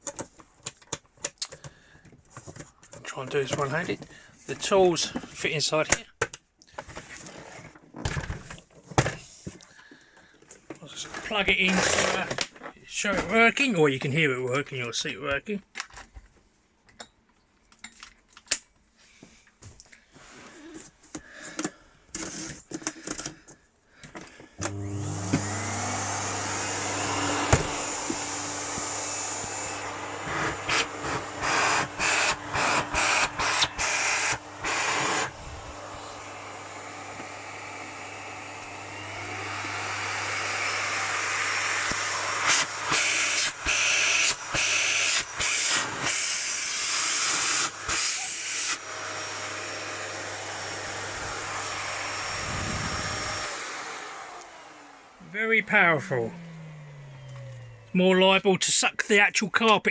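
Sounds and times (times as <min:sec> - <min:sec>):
vacuum cleaner running: 0:24.6 - 0:58.0.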